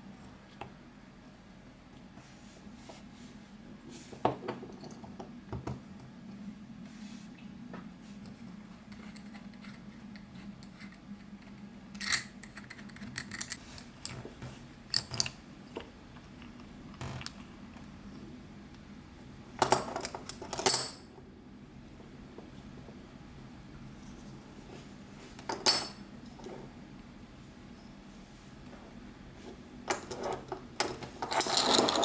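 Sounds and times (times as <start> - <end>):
metal parts clinking on work surface: 12.0 - 14.2, 30.0 - 32.0.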